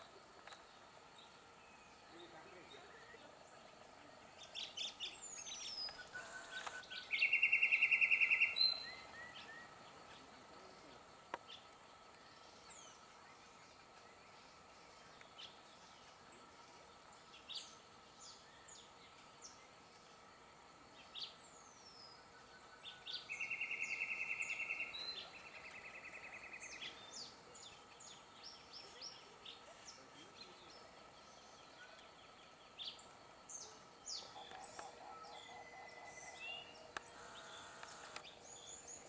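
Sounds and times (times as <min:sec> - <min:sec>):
birds chirping and whistling: 0:04.5 - 0:09.7, 0:34.1 - 0:39.0.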